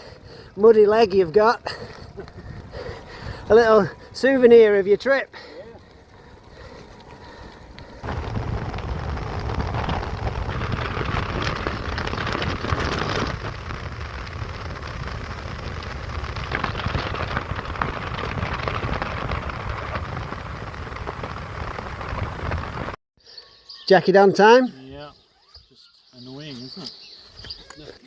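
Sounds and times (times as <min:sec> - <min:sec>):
wind rumble on microphone: 0:01.7 - 0:04.2, 0:06.1 - 0:23.0
rain hissing: 0:06.5 - 0:23.0.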